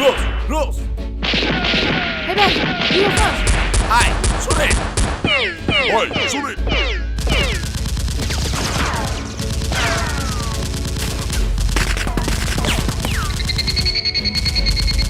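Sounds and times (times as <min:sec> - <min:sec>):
automatic gunfire: 0:07.2 - 0:13.8.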